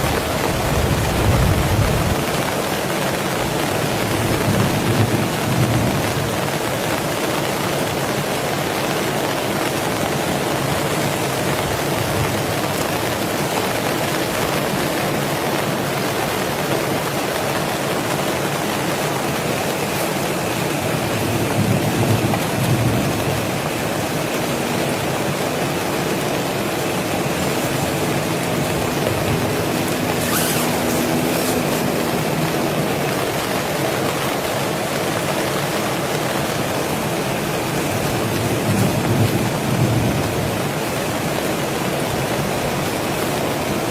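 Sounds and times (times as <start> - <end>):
heavy rain: 0.0 - 43.9.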